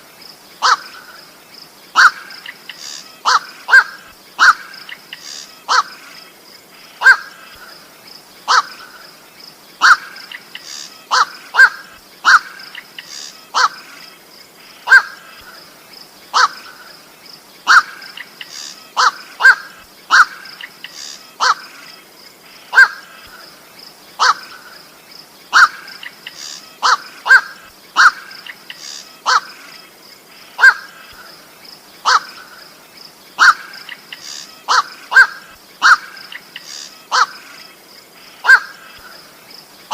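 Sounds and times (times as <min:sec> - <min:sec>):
faint high hiss: 0:00.0 - 0:39.9
heron harsh calls: 0:03.2 - 0:04.7, 0:05.7 - 0:05.9, 0:08.5 - 0:08.8, 0:09.8 - 0:10.2, 0:11.0 - 0:13.9, 0:17.7 - 0:21.7, 0:24.2 - 0:24.6, 0:25.5 - 0:29.6, 0:30.6 - 0:31.0, 0:32.0 - 0:32.5, 0:33.4 - 0:37.4, 0:38.4 - 0:38.9.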